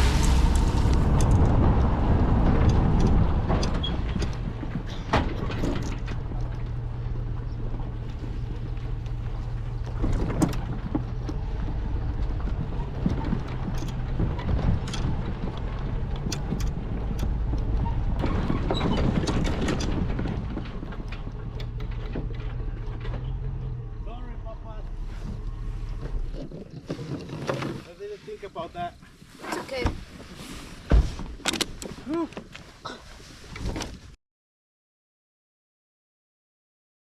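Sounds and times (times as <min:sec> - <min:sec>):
clicks and knocks: 0:09.8 - 0:23.8.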